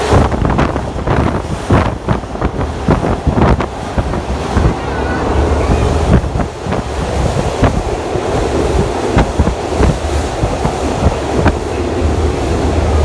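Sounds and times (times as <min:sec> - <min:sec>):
trolley car rumbling on rails: 0:00.0 - 0:13.0
wind buffeting microphone: 0:00.0 - 0:13.0.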